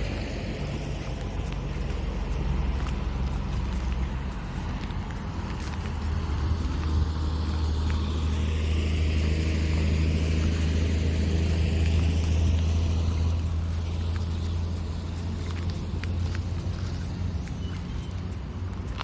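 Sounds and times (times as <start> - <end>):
motor vehicle passing: 0.0 - 19.0
steady low rumble: 0.0 - 19.0.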